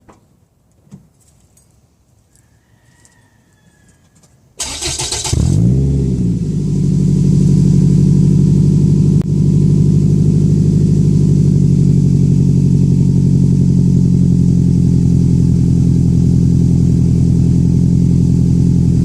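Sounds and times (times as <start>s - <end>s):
car engine revving and idling: 4.9s - 19.0s.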